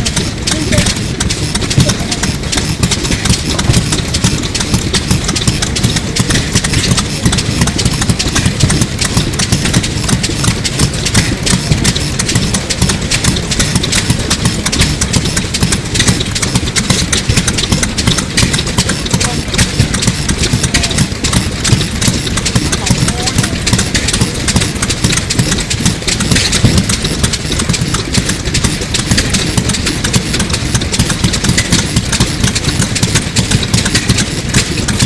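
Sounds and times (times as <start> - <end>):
engine knocking rapidly: 0.0 - 35.0.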